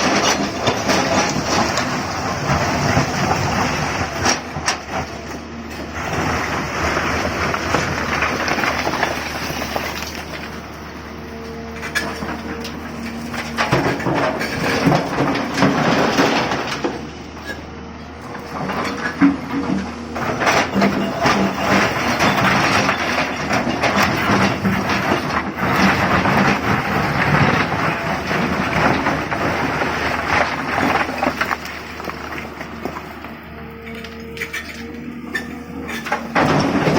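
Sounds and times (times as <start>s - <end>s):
rocks rattling and crashing: 0.0s - 10.8s, 11.8s - 17.0s, 18.5s - 33.2s, 36.0s - 36.9s
excavator diesel engine running: 0.0s - 36.9s.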